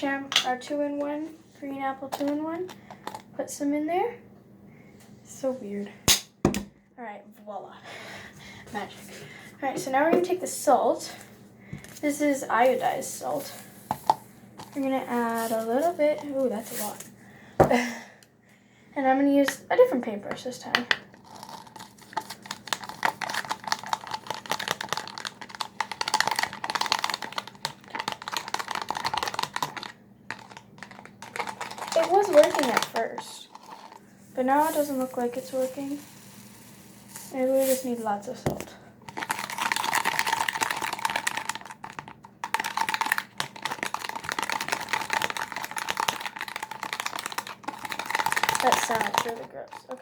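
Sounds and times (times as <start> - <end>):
brush clicking and scraping in cup: 21.2 - 34.0, 39.1 - 50.0
wet clicking and squelching: 39.1 - 50.0.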